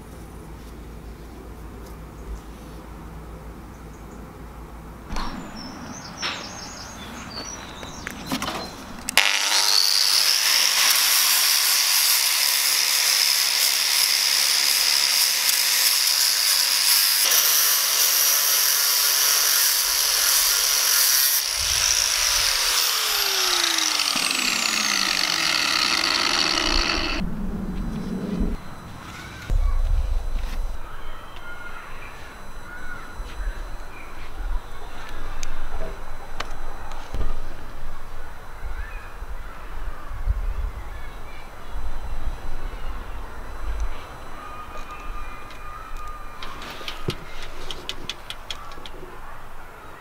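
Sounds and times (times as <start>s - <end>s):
angle grinder grinding metal: 9.2s - 27.2s.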